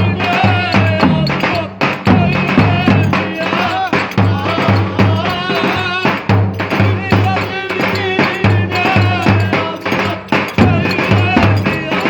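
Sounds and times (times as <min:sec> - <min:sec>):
driving drum beat: 0:00.0 - 0:12.0.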